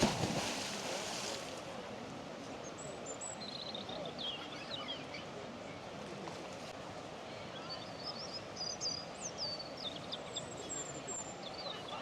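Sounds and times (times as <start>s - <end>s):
flowing river water: 0.0s - 3.0s.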